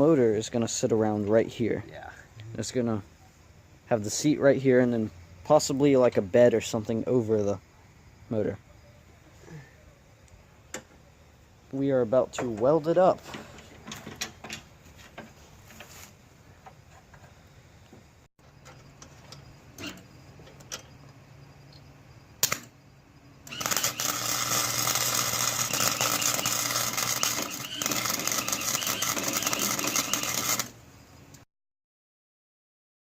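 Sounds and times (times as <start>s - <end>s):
welder humming: 23.4s - 31.4s
loud welding arc crackling: 23.5s - 30.8s.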